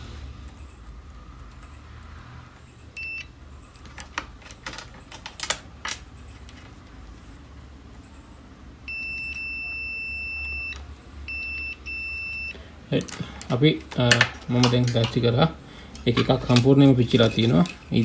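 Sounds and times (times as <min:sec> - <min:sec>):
multimeter continuity beeps: 0:02.9 - 0:03.4, 0:08.9 - 0:12.6.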